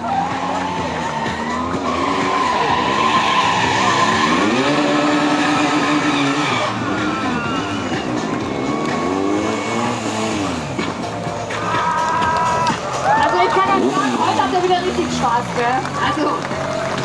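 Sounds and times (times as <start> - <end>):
tyres hissing on asphalt: 0.0 - 5.7
motorcycle engine revving: 0.0 - 11.6, 12.7 - 17.0.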